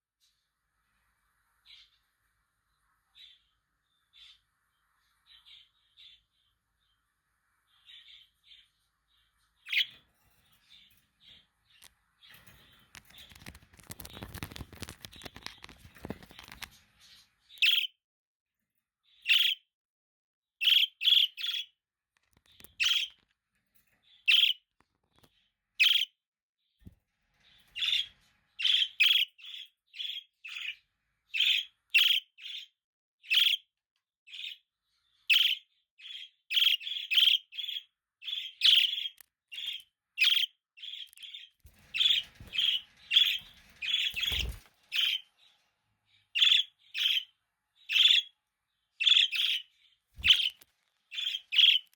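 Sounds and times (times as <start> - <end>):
budgerigar chirping: 17.6 - 17.9, 19.3 - 19.6, 20.6 - 21.7, 22.8 - 23.2, 24.3 - 24.6, 25.8 - 26.1, 27.8 - 30.8, 31.4 - 32.7, 33.3 - 33.6, 35.3 - 41.4, 46.4 - 47.3, 47.9 - 48.3, 49.0 - 51.9.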